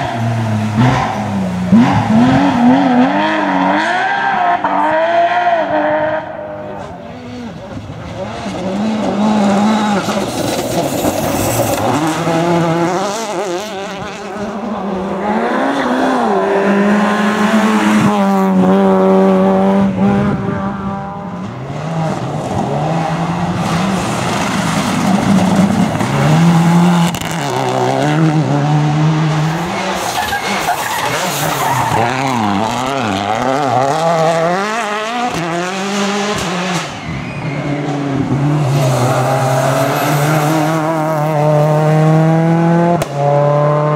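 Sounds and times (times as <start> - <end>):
rally car engines revving: 0.0 - 43.9
tyre squeal and skidding: 9.2 - 14.2, 29.4 - 34.1, 36.4 - 41.1.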